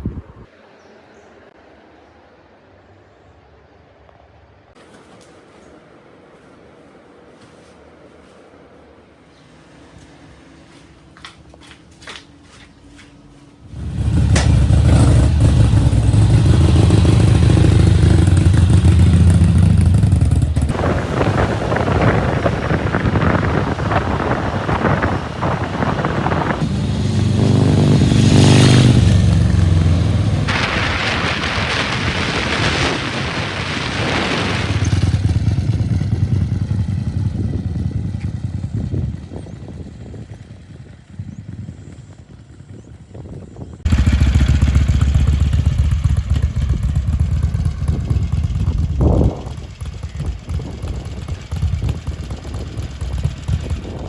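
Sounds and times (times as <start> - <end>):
wind rush: 0.0 - 0.6, 13.7 - 54.0
motorcycle engine revving: 13.6 - 54.0.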